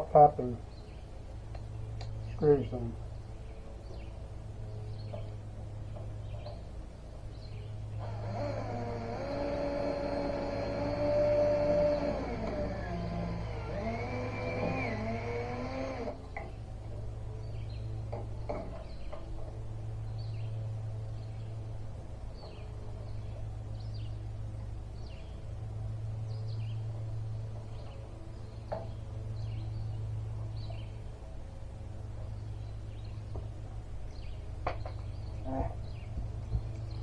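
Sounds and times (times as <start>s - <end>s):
steady low hum: 0.0s - 37.0s
small birds chirping: 0.4s - 8.2s, 9.5s - 31.4s, 32.2s - 37.0s.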